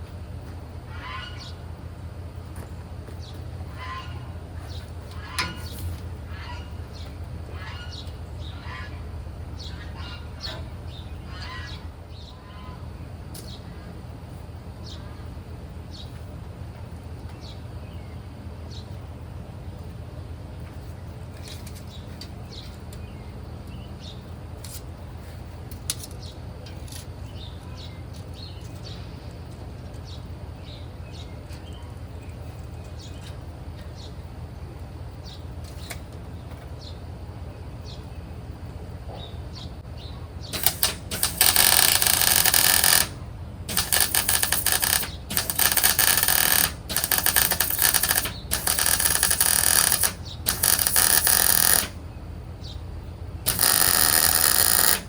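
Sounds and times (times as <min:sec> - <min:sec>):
harsh metalworking bursts: 0:40.5 - 0:52.0, 0:53.4 - 0:55.0.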